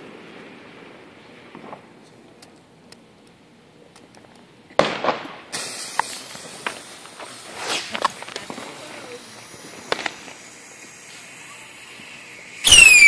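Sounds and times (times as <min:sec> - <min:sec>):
fireworks bursting and popping: 0:00.0 - 0:13.0
fireworks hissing: 0:04.3 - 0:13.0.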